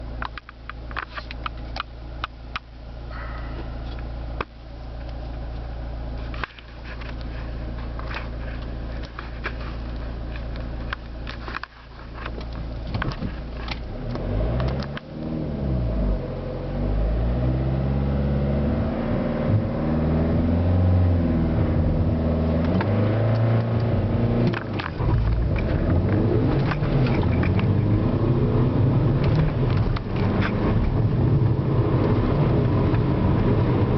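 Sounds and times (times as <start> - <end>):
road rumble: 0.0 - 33.9
diesel engine accelerating: 13.8 - 33.9.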